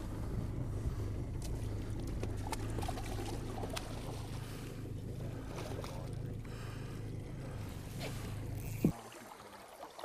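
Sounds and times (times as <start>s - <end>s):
boat motor humming: 0.0s - 10.0s
water splashing and trickling: 1.3s - 6.2s, 8.1s - 10.0s.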